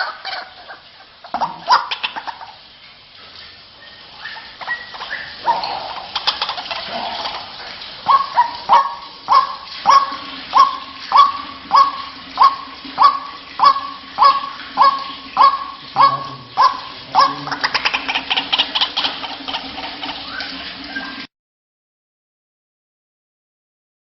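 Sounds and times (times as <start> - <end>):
waterhen calling: 0.0 - 21.3.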